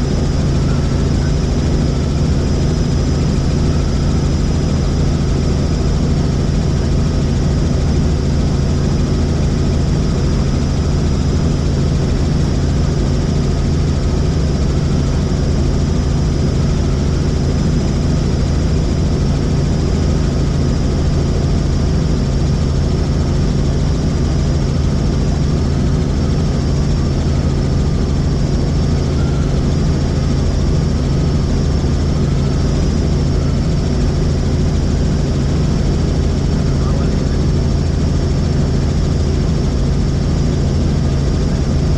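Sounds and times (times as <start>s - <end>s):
helicopter rotor and engine drone: 0.0s - 41.9s.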